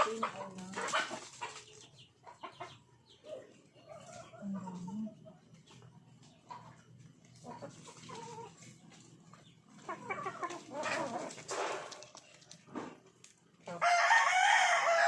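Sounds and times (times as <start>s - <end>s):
farmyard animal calls: 0.0s - 15.0s
rooster crowing: 13.8s - 15.0s.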